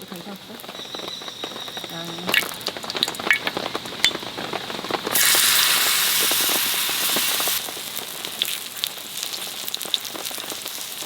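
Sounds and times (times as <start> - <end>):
small ticks and crackles: 0.0 - 5.2, 6.4 - 11.0
rain pattering: 0.0 - 11.0
loud hiss: 5.1 - 8.5.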